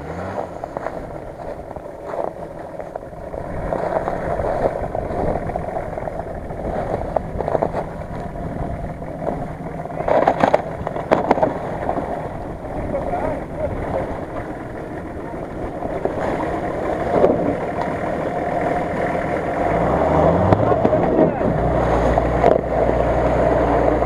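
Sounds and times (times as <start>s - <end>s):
engine running at low revs: 0.0s - 24.0s
wheel crunching on ice: 0.1s - 19.7s.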